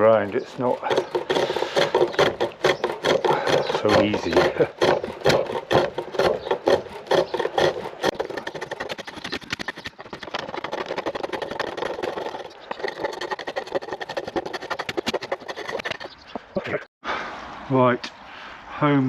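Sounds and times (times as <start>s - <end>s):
wooden scraping on a lathe: 0.0s - 16.2s.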